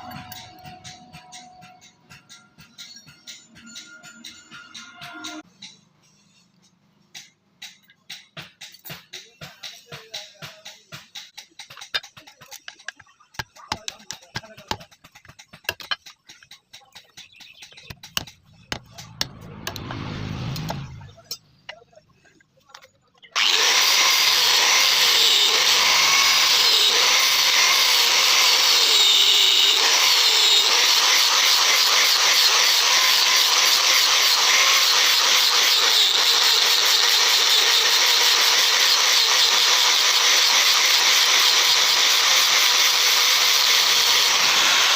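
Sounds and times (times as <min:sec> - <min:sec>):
low rumble: 0:18.4 - 0:21.7
power tool on metal: 0:23.4 - 0:44.9.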